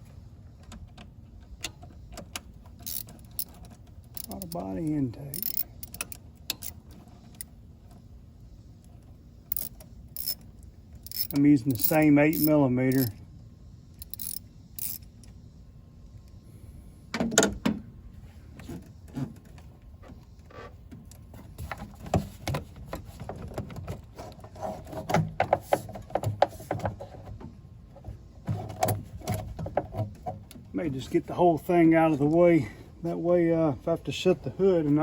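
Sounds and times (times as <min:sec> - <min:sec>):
socket wrench clicking: 0:02.8 - 0:03.6, 0:05.3 - 0:06.8, 0:09.5 - 0:10.4, 0:11.0 - 0:13.1, 0:14.0 - 0:15.1.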